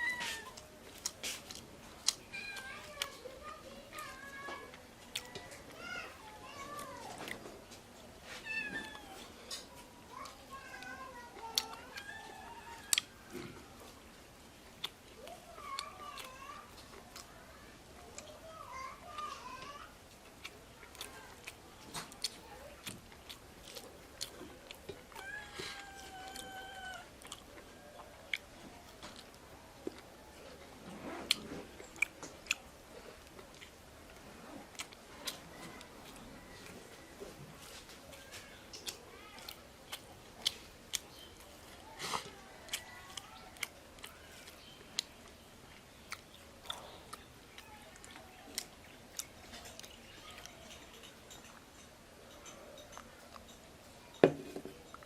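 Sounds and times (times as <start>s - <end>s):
person chewing food: 0.0s - 55.0s
person eating mouth sounds: 20.3s - 28.6s.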